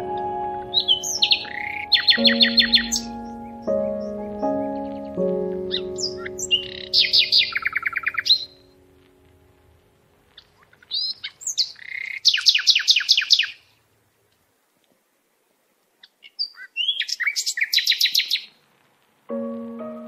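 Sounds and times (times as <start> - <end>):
songbird singing trill: 0.0 - 8.9, 10.4 - 13.6, 16.1 - 18.5
music track: 0.0 - 10.2, 19.3 - 20.0.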